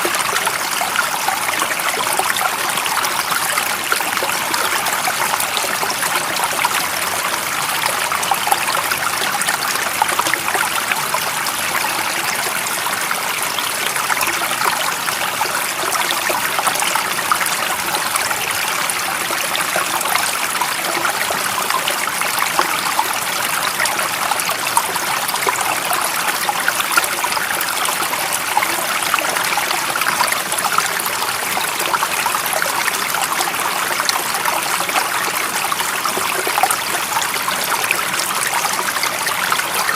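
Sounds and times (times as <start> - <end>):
stream water running: 0.0 - 39.9.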